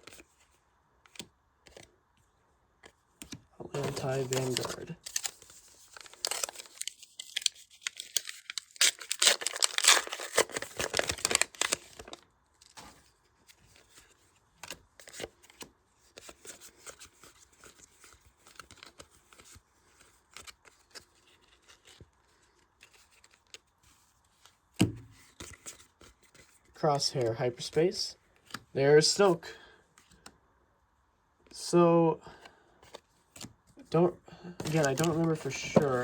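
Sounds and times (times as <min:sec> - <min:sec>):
cards rustling and clicking: 0:00.0 - 0:02.0, 0:02.8 - 0:30.4, 0:32.4 - 0:36.0
wrapper tearing and crinkling: 0:03.8 - 0:12.2, 0:34.6 - 0:36.0.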